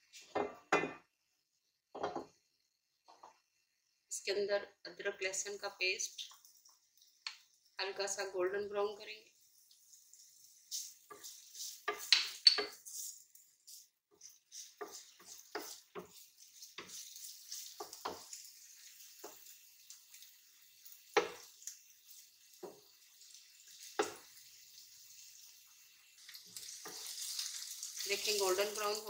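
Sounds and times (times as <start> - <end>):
paste sizzling in hot oil: 5.5 - 29.0
spatula scraping and tapping pan: 10.6 - 29.0.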